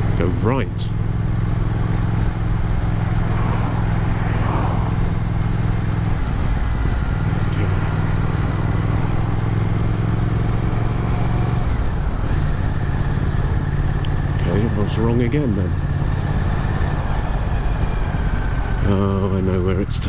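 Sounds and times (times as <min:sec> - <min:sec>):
motorcycle engine running: 0:00.0 - 0:20.0
road noise: 0:00.0 - 0:20.0.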